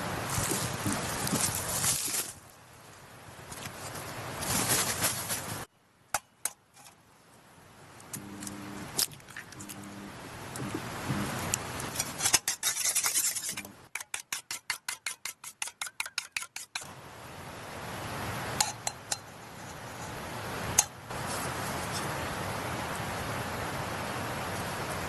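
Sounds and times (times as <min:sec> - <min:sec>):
steady hiss: 0:06.7 - 0:13.9.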